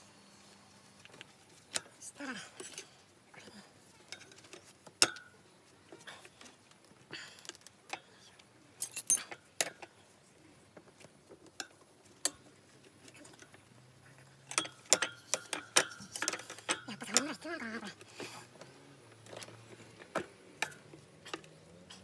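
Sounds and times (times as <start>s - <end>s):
metal tools clinking: 8.8s - 9.4s, 14.5s - 17.3s.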